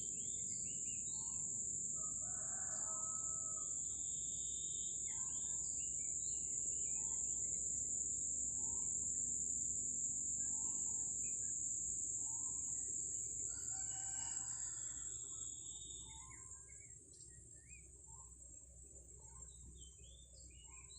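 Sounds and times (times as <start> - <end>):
high-pitched insect drone: 0.0 - 16.7
rooster crowing: 2.0 - 3.8, 13.5 - 15.2.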